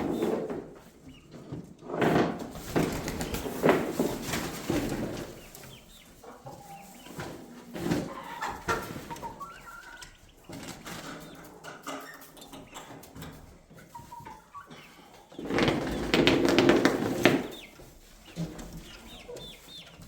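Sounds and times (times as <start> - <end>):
chickens clucking: 0.0 - 20.0
rustles and knocks: 15.4 - 20.0.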